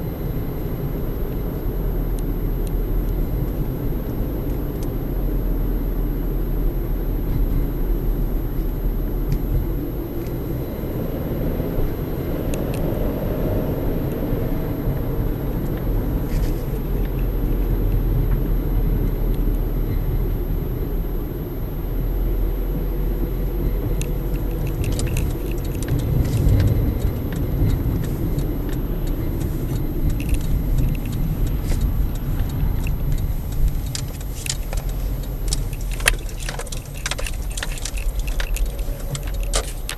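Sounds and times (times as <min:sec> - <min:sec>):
vehicle rumble: 0:00.0 - 0:39.9
light rattling clicks: 0:24.0 - 0:39.9.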